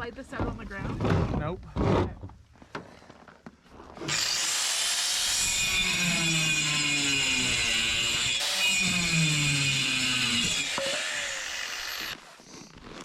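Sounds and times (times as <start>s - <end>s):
power tool cutting wood: 4.1s - 12.2s.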